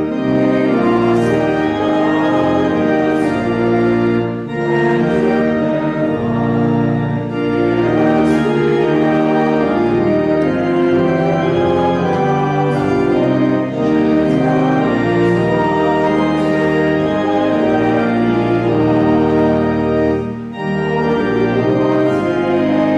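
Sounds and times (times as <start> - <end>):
organ playing held chords: 0.0 - 22.9.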